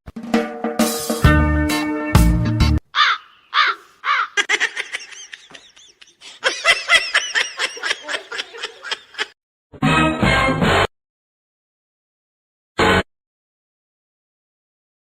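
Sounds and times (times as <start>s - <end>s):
high-pitched laughter: 3.0s - 9.4s.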